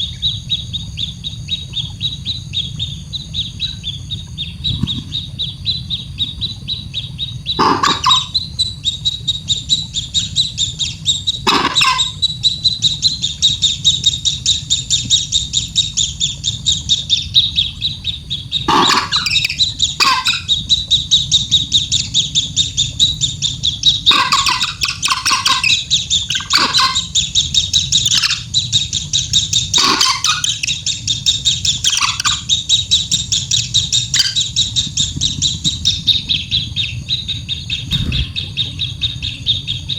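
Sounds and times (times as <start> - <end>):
steady low hum: 0.0 - 29.8, 30.8 - 39.9
baby bird begging chirps: 7.4 - 8.7, 10.0 - 15.8, 18.7 - 20.6, 23.8 - 28.8, 37.9 - 39.0.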